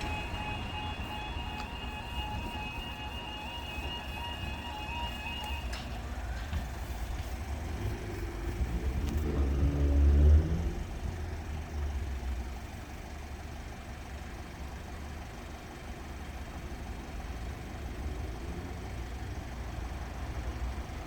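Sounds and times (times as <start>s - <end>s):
vehicle engine passing: 0.0s - 12.6s
low traffic rumble: 0.0s - 21.0s.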